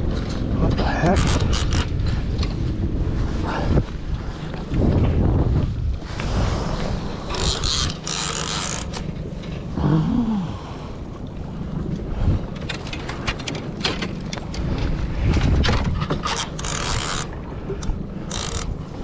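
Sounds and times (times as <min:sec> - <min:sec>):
wind rumble on microphone: 0:00.0 - 0:19.0
fishing reel clicking and creaking: 0:01.0 - 0:02.0, 0:07.3 - 0:09.1, 0:16.2 - 0:19.0.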